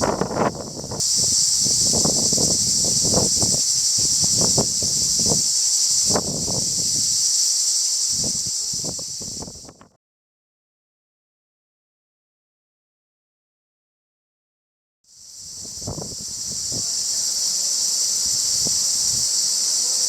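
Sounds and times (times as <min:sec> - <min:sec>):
high-pitched insect buzz: 0:00.0 - 0:09.9, 0:15.1 - 0:20.0
wind buffeting microphone: 0:00.0 - 0:09.9, 0:15.4 - 0:19.8.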